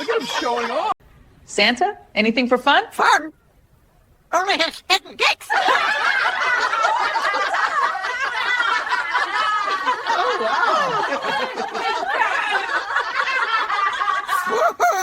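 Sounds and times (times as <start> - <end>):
people laughing together: 0.0 - 1.0, 5.4 - 15.0.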